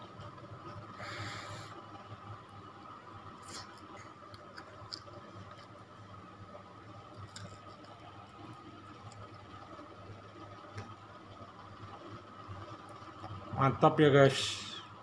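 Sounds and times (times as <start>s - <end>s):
steady low hum: 0.0s - 15.0s
faint chewing with crackles: 2.3s - 6.1s, 7.0s - 13.5s.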